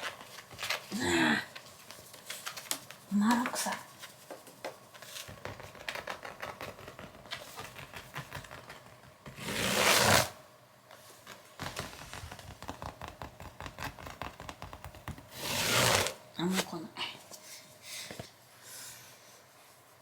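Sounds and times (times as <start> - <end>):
kitten scratching and scrabbling: 1.9 - 10.3, 11.3 - 16.2.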